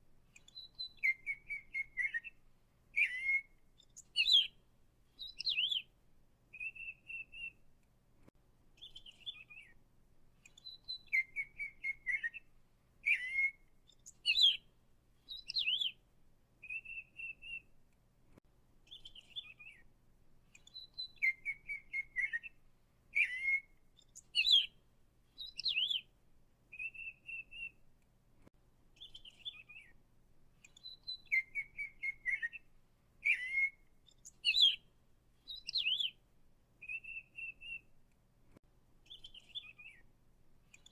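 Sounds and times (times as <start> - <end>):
songbird chirping and whistling: 0.3 - 5.9, 6.5 - 7.7, 8.8 - 9.8, 10.4 - 16.0, 16.6 - 17.7, 18.9 - 19.9, 20.5 - 26.1, 26.7 - 27.8, 29.0 - 30.0, 30.6 - 36.2, 36.8 - 37.9, 39.0 - 40.1, 40.7 - 40.9.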